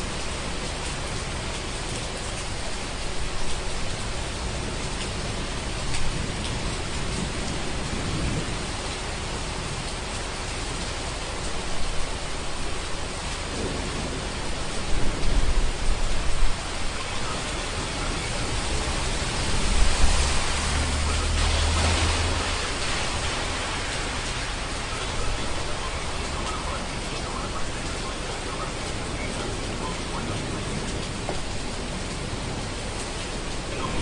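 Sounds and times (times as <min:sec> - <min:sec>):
heavy rain: 0:00.0 - 0:34.0
rolling thunder: 0:05.8 - 0:08.8, 0:13.4 - 0:20.8.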